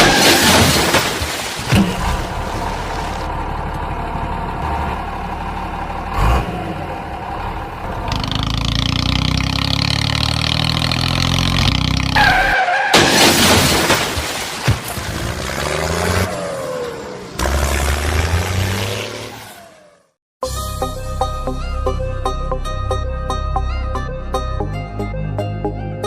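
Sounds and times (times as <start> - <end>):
tractor engine running: 1.7 - 12.2.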